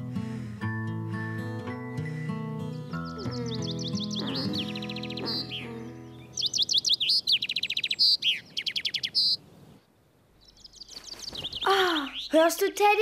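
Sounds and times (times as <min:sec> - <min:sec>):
background music: 0:00.0 - 0:06.5
cartoon bird chirping and trilling: 0:03.1 - 0:09.4.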